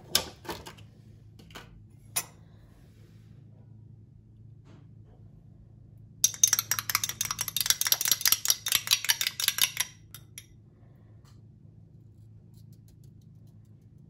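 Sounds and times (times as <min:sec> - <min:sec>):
utensil clinking against dish: 0:06.2 - 0:10.4.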